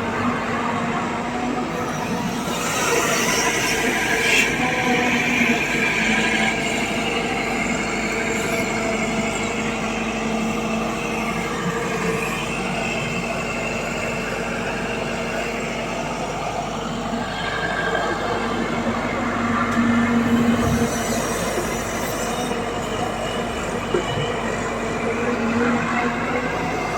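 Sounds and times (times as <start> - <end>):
high hydraulic whine: 0.0 - 26.9
excavator diesel engine running: 6.8 - 26.9.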